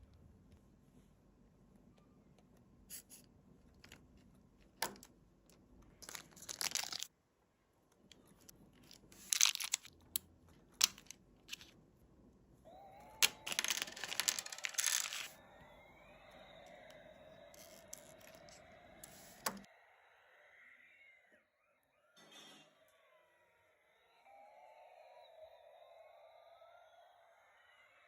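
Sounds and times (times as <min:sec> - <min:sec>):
packaging rustling and tearing: 0:06.0 - 0:07.1, 0:08.8 - 0:09.9, 0:13.2 - 0:15.4.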